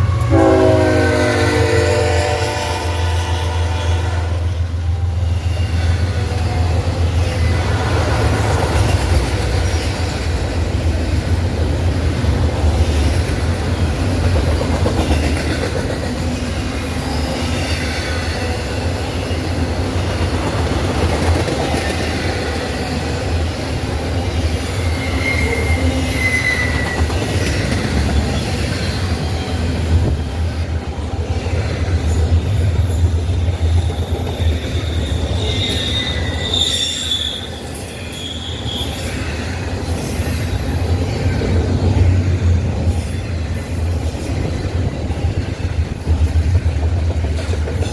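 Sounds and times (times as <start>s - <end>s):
train wheels rumbling on rail: 0.0s - 47.9s
high wheel squeal: 24.2s - 30.4s, 32.3s - 44.6s.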